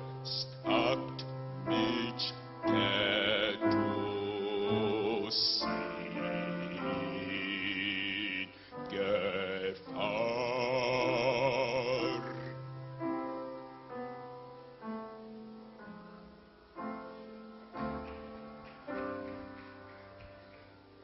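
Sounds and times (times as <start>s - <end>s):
person singing with vibrato: 0.0s - 12.8s
piano chords: 0.0s - 21.0s.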